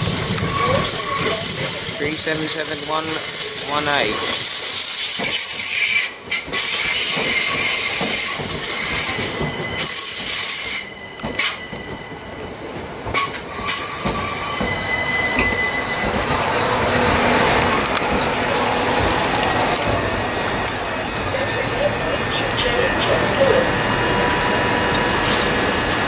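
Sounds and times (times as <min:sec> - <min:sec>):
train wheels squealing: 0:00.0 - 0:19.1, 0:24.6 - 0:26.0
rumble of train carriages: 0:00.0 - 0:26.0.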